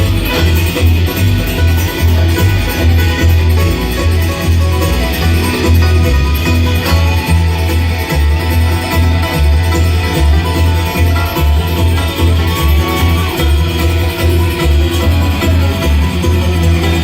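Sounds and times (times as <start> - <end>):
banjo: 0.0 - 17.0
picked guitar: 0.0 - 17.0
steady bass beat: 0.0 - 17.0.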